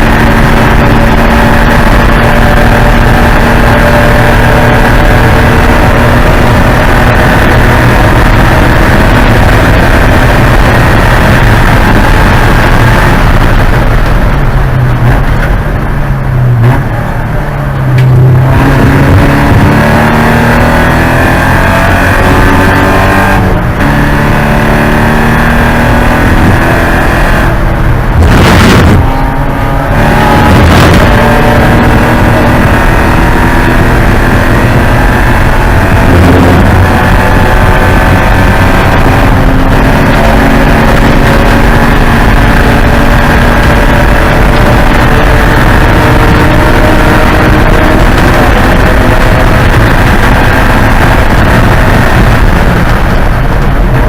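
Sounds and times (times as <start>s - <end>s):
race car engine running hard: 0.0s - 54.0s
short rushing noise: 27.5s - 29.8s.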